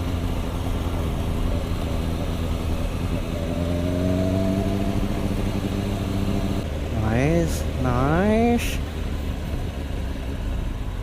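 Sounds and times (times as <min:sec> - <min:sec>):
motorcycle engines rumbling: 0:00.0 - 0:11.0
motorcycle engine revving up: 0:03.1 - 0:06.6.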